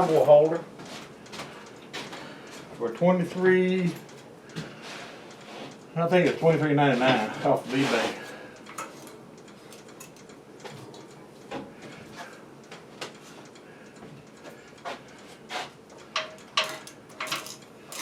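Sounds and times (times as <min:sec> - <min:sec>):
tools and metal parts clicking: 0:08.7 - 0:11.0, 0:16.1 - 0:18.0.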